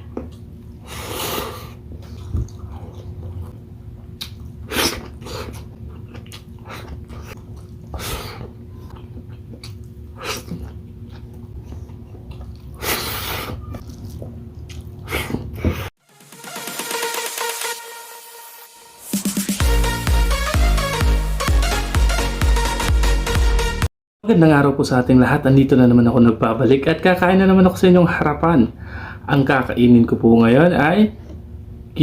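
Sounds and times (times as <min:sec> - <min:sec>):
person chewing and slurping: 0:00.1 - 0:15.9.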